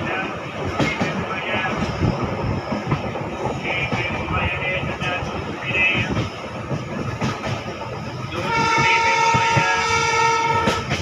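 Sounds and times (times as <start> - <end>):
train rumbling with wheel clacks: 0.0 - 11.0
train horn blast: 8.4 - 11.0.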